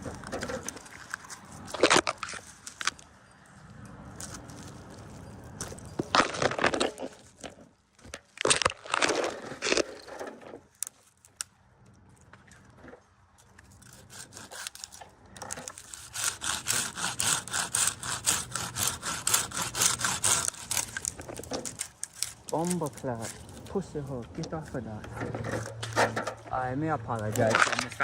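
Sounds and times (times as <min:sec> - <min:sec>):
hand saw cutting wood: 0:13.8 - 0:23.5.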